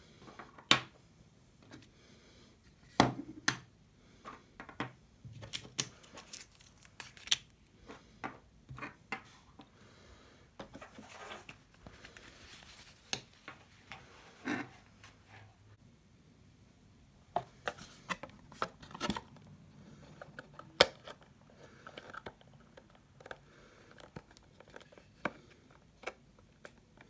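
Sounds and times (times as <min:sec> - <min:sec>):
soft rustling: 0:10.7 - 0:15.6.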